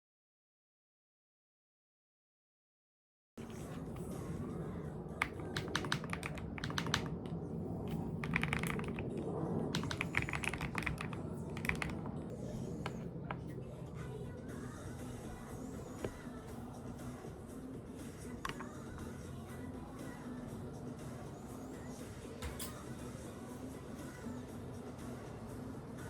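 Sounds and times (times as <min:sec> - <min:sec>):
steady low hum: 0:03.4 - 0:26.0
mechanical keyboard key clicks: 0:05.2 - 0:07.1, 0:07.9 - 0:09.0, 0:09.8 - 0:12.0.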